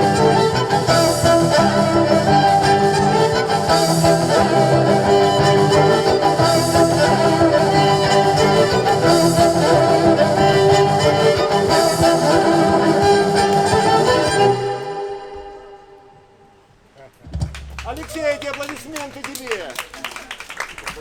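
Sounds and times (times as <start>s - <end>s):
band music: 0.0s - 16.4s
violin sustained notes: 0.0s - 16.6s.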